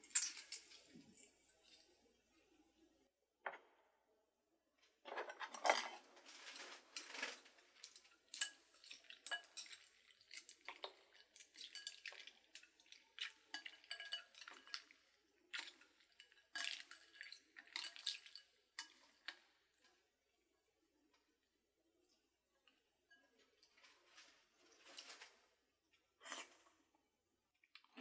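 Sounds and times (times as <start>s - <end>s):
utensils clinking against dishes: 8.3s - 9.9s, 13.6s - 14.9s.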